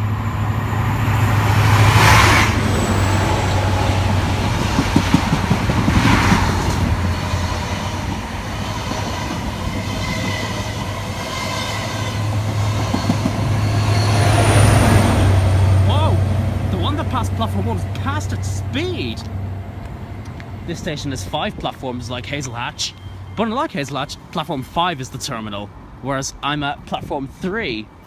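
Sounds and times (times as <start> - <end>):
train passing at speed: 0.0 - 26.1.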